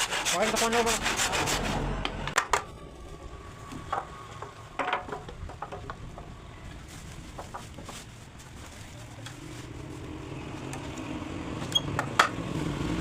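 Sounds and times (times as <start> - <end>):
wooden pieces knocking: 3.9 - 6.3.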